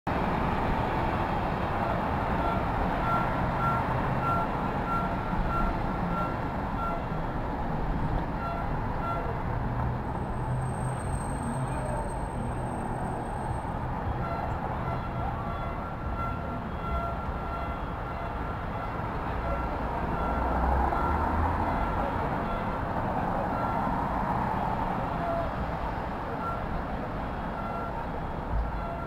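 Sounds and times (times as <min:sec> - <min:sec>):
city street traffic: 0:00.1 - 0:29.0
vehicle backup beeper: 0:01.8 - 0:07.1, 0:10.6 - 0:22.8, 0:26.3 - 0:26.7, 0:27.6 - 0:28.1.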